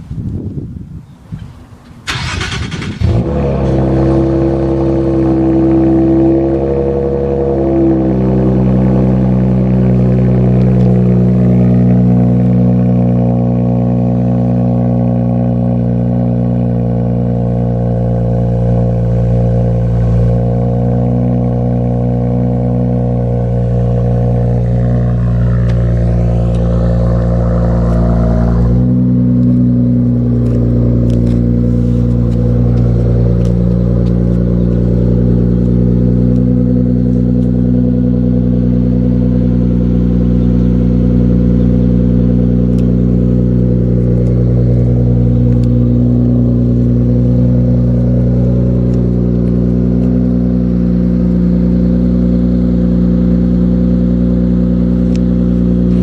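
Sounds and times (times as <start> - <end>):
car engine idling: 1.8 - 56.0.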